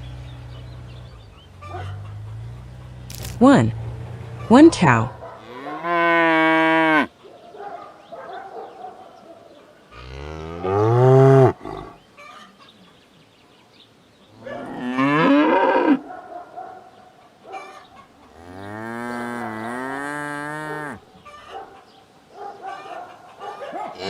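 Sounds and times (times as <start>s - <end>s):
cow mooing: 4.4s - 7.1s, 10.0s - 12.0s, 14.5s - 16.0s, 18.3s - 21.0s.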